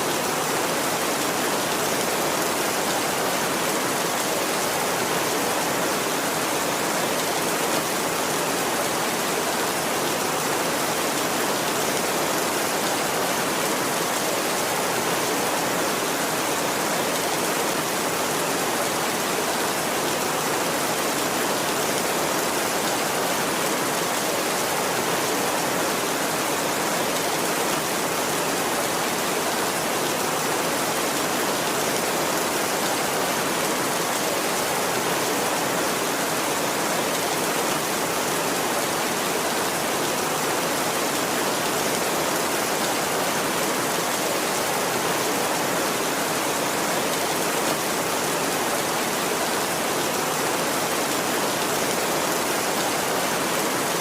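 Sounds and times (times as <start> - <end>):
heavy rain on a tin roof: 0.0 - 54.0.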